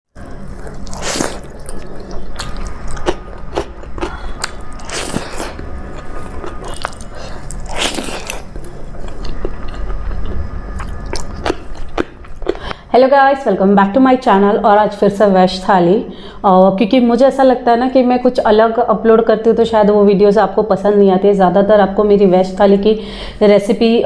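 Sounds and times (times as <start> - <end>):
person chewing crunchy food: 0.2 - 12.9.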